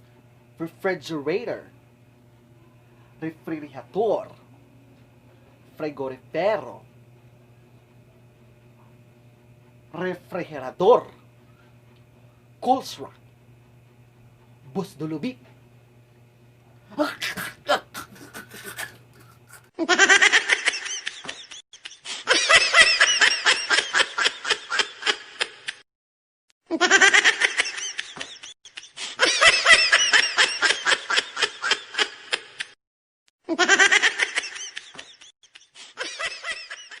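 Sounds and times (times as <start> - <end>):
high-pitched laughter: 17.0 - 25.8, 26.7 - 32.7, 33.5 - 37.0.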